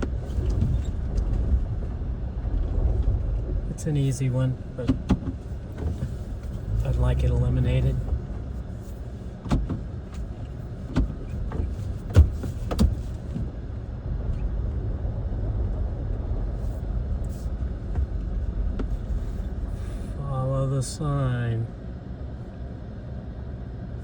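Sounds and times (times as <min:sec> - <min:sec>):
car engine and road rumble: 0:00.0 - 0:24.0
car knocks and jolts: 0:09.3 - 0:13.7.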